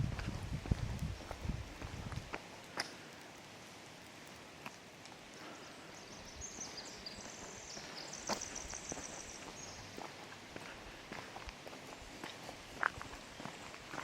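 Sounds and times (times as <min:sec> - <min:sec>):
soft footsteps: 0:00.0 - 0:02.9, 0:06.5 - 0:14.0
rain hissing in forest: 0:00.0 - 0:14.0
songbird trilling: 0:06.0 - 0:09.9.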